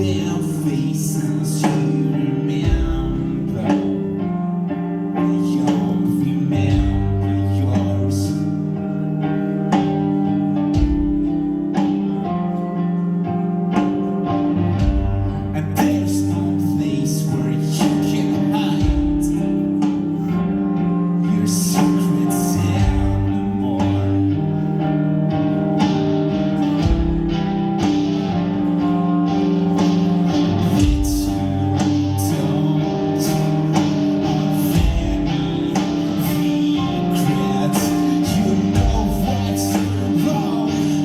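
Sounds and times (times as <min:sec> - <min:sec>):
person singing: 0:00.0 - 0:41.0
rock band playing: 0:00.0 - 0:41.0.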